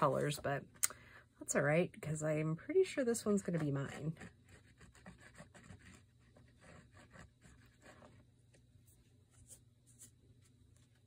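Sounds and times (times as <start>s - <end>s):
low steady hum: 0.0s - 11.0s
paper scratching and tapping: 3.4s - 8.6s.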